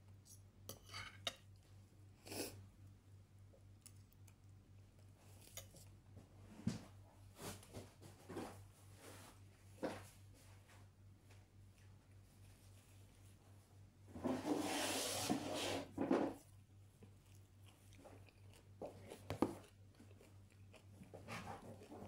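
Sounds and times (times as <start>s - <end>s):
low steady hum: 0.0s - 14.6s
crunchy biting and chewing: 17.0s - 22.0s.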